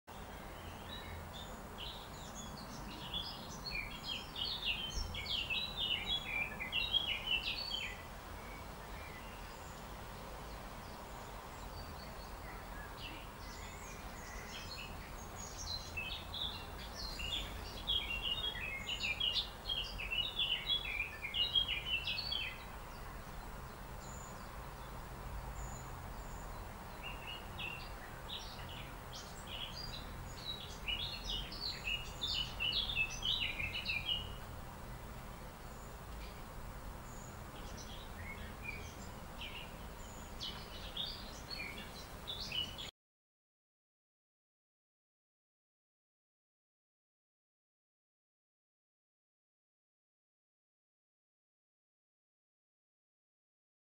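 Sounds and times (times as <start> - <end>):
birds chirping: 0.1 - 42.9
low background noise: 0.1 - 42.9.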